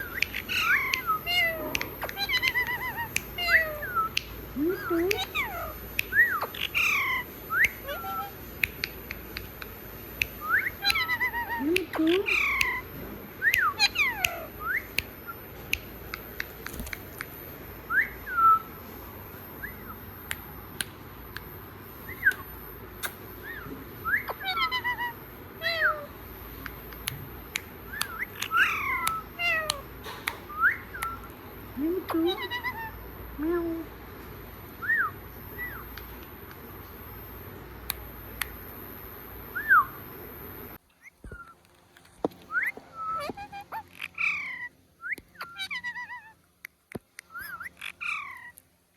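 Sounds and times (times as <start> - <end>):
parrot whistling calls: 0.0 - 9.5, 10.2 - 16.5, 17.8 - 20.3, 21.8 - 31.4, 32.0 - 33.2, 34.8 - 36.6, 39.4 - 40.3
parrot clicks: 0.1 - 17.4, 22.1 - 23.3, 26.5 - 31.3.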